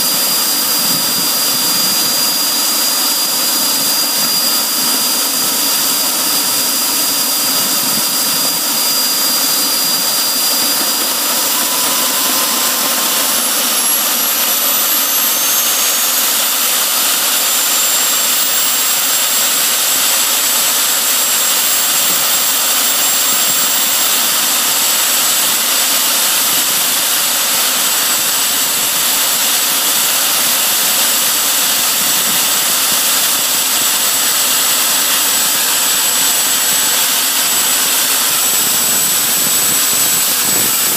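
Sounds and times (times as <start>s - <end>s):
jet engine roar: 0.0s - 40.9s
turbine whine: 0.0s - 40.9s.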